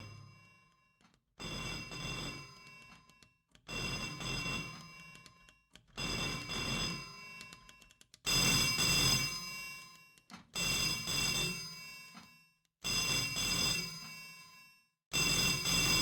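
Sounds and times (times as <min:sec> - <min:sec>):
telephone bell ringing: 0:03.7 - 0:05.2, 0:08.4 - 0:10.0, 0:12.9 - 0:16.0.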